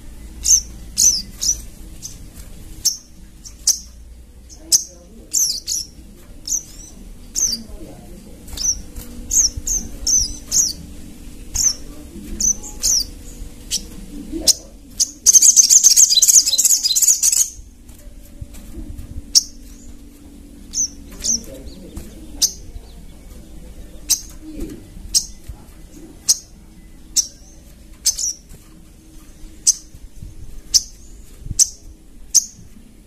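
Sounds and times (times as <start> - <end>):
bird chirps: 0.0 - 7.7, 8.5 - 17.7, 19.3 - 32.7
loud fast bird trill: 14.5 - 17.6.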